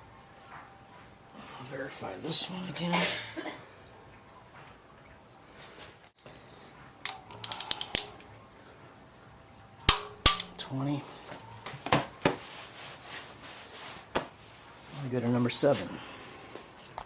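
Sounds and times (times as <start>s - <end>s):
sharp metallic clicks: 7.0s - 8.2s
ratchet clicks: 7.1s - 8.1s.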